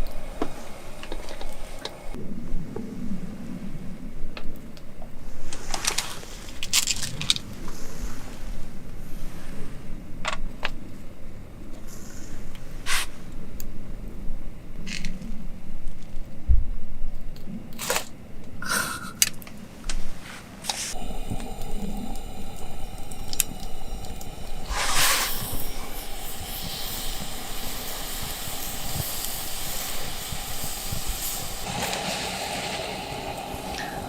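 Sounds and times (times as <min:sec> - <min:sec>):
meat sizzling: 0:20.9 - 0:34.0.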